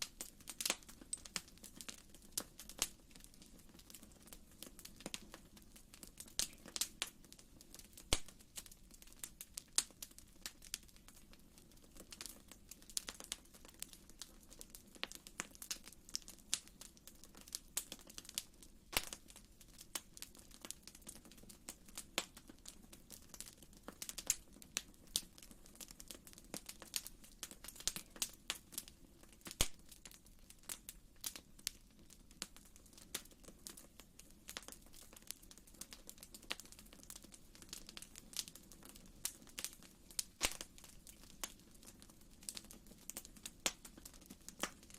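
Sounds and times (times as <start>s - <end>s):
fire crackling and popping: 0.0s - 44.9s.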